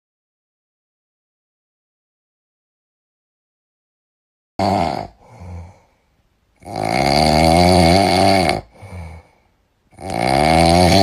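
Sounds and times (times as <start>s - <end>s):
loud snoring: 4.6s - 5.8s, 6.6s - 9.3s, 9.9s - 11.0s
soft breath: 5.1s - 6.3s, 8.6s - 9.8s.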